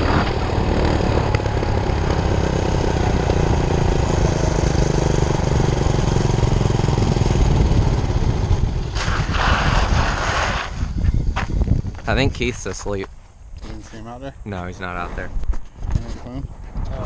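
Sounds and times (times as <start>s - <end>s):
small engine running: 0.0s - 10.4s
rush of noise: 0.0s - 12.7s.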